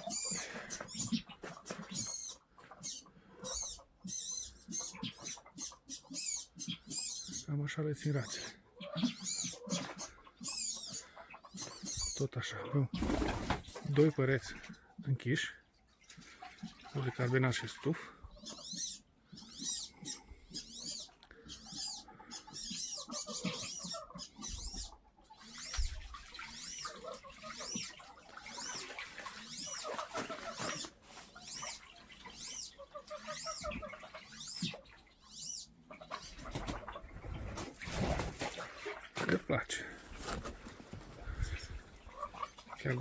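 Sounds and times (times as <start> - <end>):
ducks whistling: 0.0 - 7.5
ducks chattering: 0.0 - 43.0.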